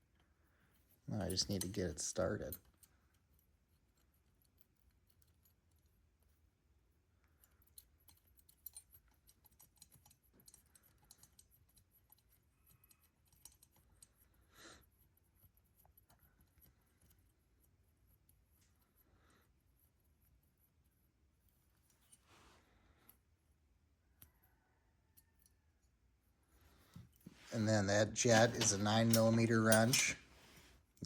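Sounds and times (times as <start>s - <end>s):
small metal parts clicking: 7.2s - 19.0s.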